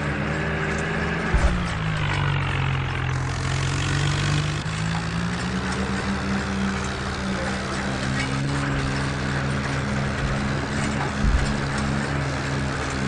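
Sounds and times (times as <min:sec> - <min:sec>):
tractor diesel engine running: 0:00.0 - 0:13.0
low thump: 0:01.3 - 0:02.2, 0:10.2 - 0:11.9.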